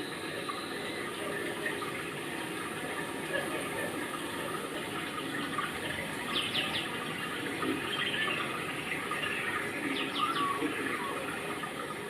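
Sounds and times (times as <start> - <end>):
rushing water-like noise: 0.0 - 12.0.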